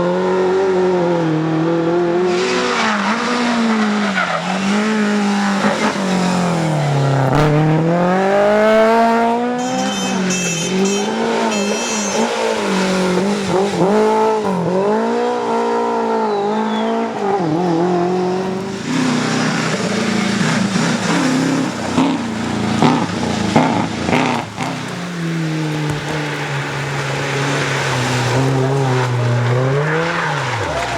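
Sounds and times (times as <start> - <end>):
rally car engine revving: 0.0 - 30.9
tyre squeal: 2.2 - 14.6.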